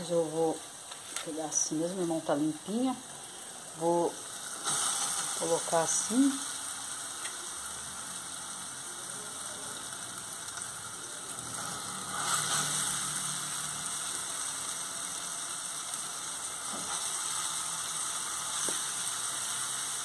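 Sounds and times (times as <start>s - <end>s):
meat and onion sizzling in oil: 0.0s - 20.0s.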